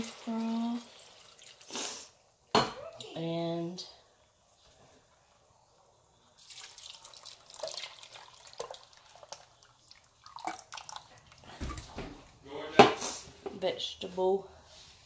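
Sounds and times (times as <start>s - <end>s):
broth pouring and splashing: 0.0s - 2.1s, 6.4s - 11.8s.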